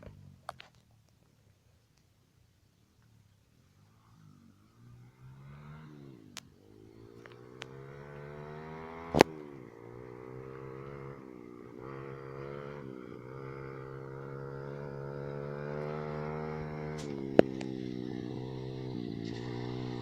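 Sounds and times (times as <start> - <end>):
motorbike engine running: 7.3 - 20.0.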